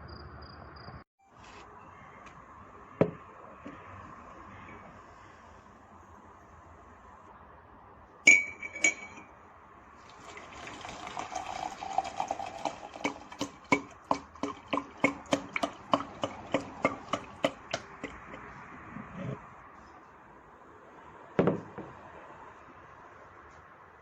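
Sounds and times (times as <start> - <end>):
tableware clinking: 8.3 - 9.3.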